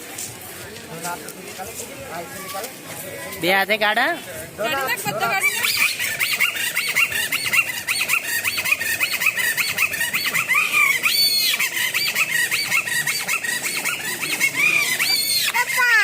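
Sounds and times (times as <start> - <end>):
reed whistle chirping squeaks: 5.2 - 16.0.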